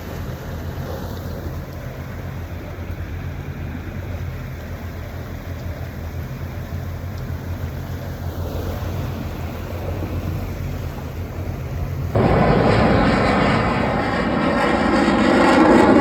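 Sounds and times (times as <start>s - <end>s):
boat engine hum: 0.0s - 16.0s
jet aircraft roar: 8.9s - 16.0s.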